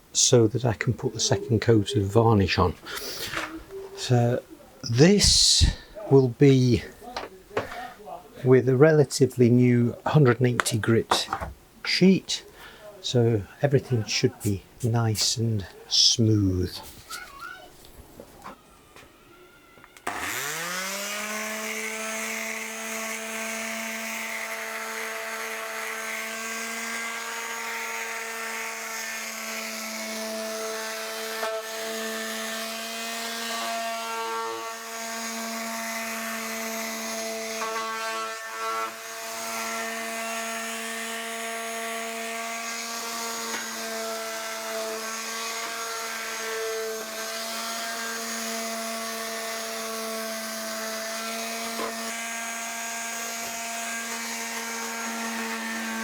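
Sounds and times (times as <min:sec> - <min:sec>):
electric sander humming: 0:20.0 - 0:56.0.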